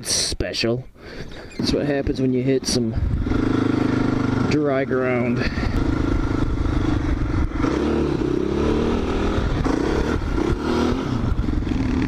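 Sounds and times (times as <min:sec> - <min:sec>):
quad engine revving: 0:02.6 - 0:12.0.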